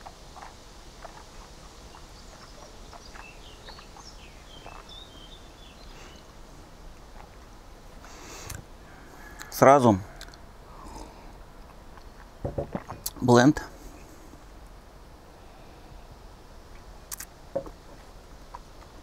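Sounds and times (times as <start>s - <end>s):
faint bird chirps: 1.1s - 6.3s.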